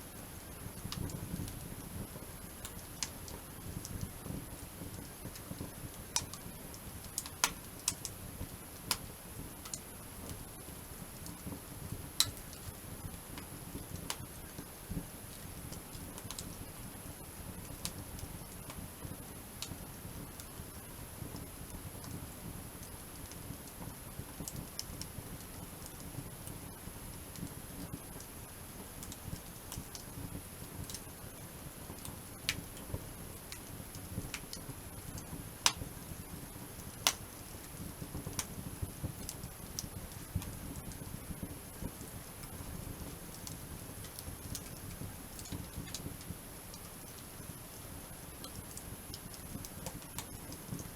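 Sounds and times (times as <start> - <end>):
campfire crackling and popping: 0.1 - 50.9.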